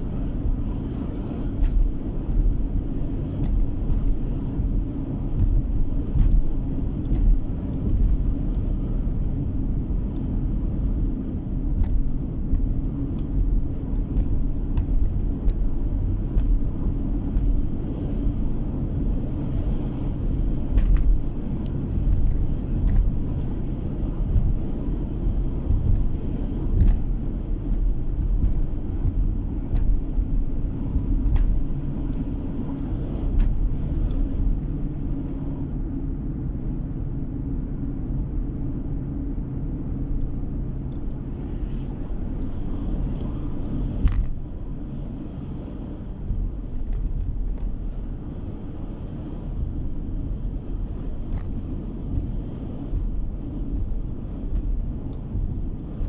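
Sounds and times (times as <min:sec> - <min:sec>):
tyres and engine rumble: 0:00.0 - 0:56.0
sharp ticks and knocks: 0:01.6 - 0:18.6, 0:19.5 - 0:36.4, 0:44.0 - 0:44.6, 0:46.3 - 0:49.0, 0:49.6 - 0:56.0.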